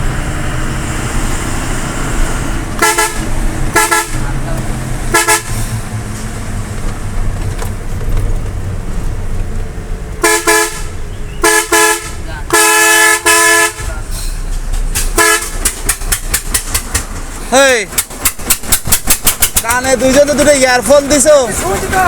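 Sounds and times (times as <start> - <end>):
truck engine rumble: 0.0 - 22.0
truck horn blasts: 2.8 - 5.8, 10.2 - 14.1, 15.1 - 15.8.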